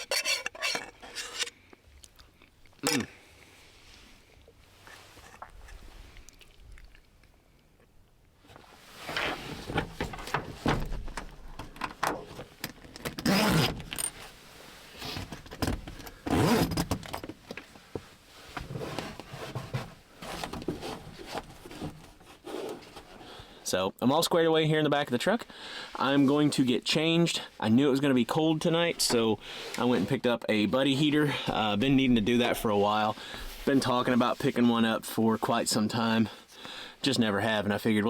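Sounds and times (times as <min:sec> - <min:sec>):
gear rustling and clinking: 0:00.0 - 0:01.5, 0:11.7 - 0:14.4.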